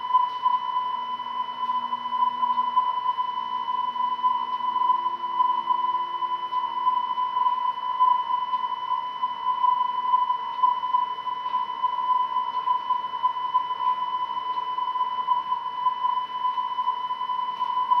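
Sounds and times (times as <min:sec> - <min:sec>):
steady electronic tone: 0:00.0 - 0:18.0.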